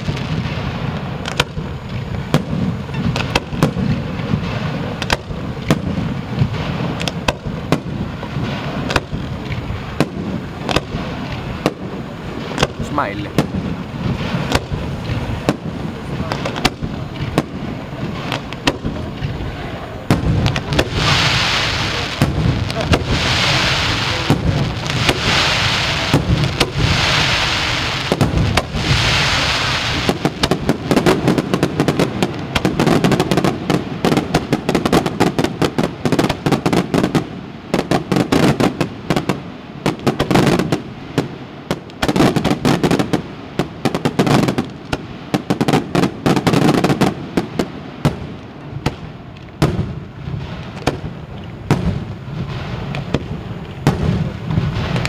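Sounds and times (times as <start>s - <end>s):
fireworks bursting: 0.0s - 55.0s
steady hiss: 0.0s - 55.0s.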